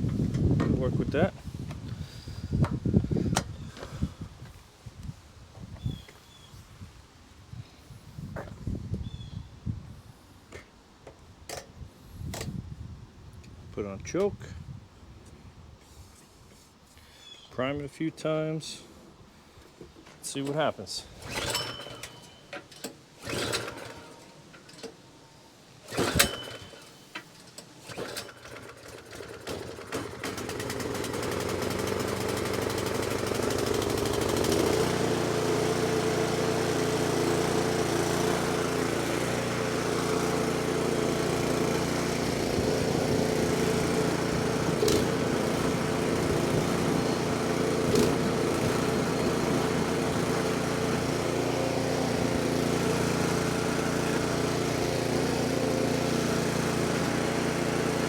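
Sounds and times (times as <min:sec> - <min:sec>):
starter cord pulls: 0:20.1 - 0:25.0, 0:25.9 - 0:58.0
small engine sputtering and running: 0:21.2 - 0:22.4, 0:23.2 - 0:24.8, 0:25.9 - 0:58.0.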